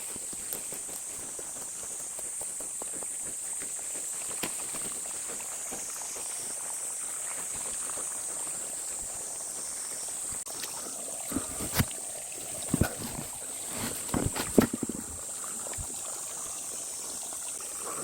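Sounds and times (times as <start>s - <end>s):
faint water trickle: 0.0s - 18.0s
insects buzzing: 0.0s - 18.0s
sharp knocks and thuds: 12.6s - 15.2s.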